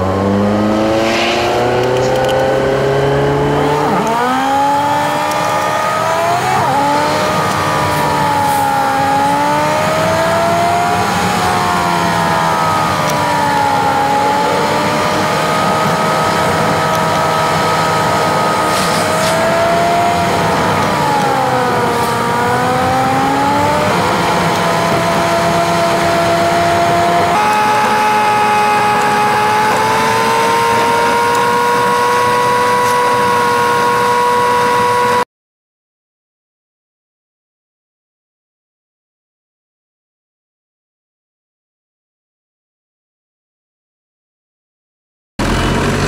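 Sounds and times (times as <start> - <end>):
car engine and road noise: 0.0 - 35.3, 45.4 - 46.0.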